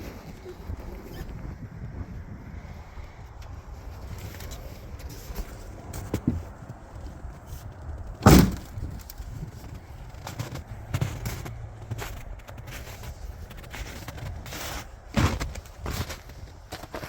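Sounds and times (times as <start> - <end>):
loud thump: 8.2 - 8.8.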